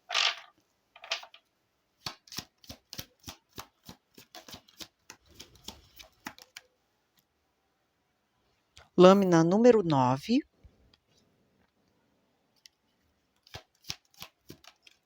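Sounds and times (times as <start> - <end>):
cards being shuffled: 2.0 - 6.7, 13.4 - 15.0.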